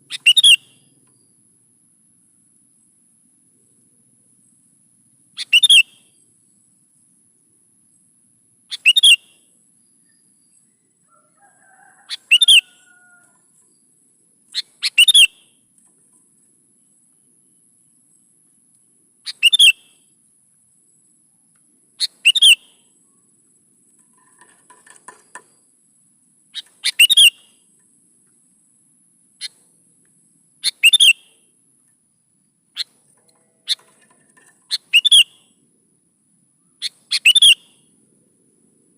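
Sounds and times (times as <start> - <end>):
bird singing whistled phrases: 0.1 - 0.8, 5.4 - 6.0, 8.7 - 9.4, 12.2 - 12.7, 14.6 - 15.4, 19.3 - 19.9, 22.0 - 22.8, 26.8 - 27.5, 30.6 - 31.4, 34.7 - 35.4, 36.8 - 37.8.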